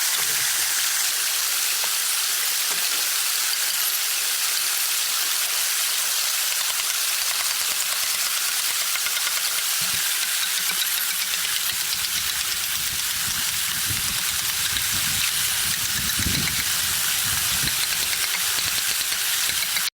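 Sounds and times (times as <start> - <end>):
steady rain hiss: 0.0 - 6.2.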